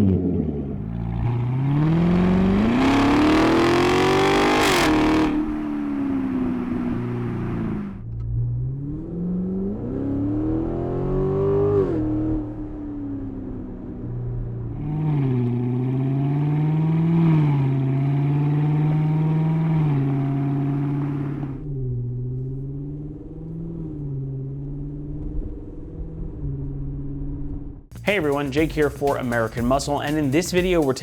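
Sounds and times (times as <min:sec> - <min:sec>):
sports car engine revving: 0:00.0 - 0:27.7.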